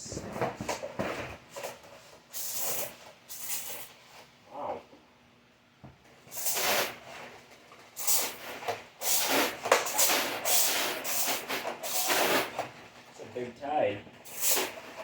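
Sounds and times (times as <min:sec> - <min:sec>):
toy water blaster spraying: 0:02.3 - 0:03.9, 0:06.3 - 0:07.0, 0:08.0 - 0:12.6, 0:14.2 - 0:14.8.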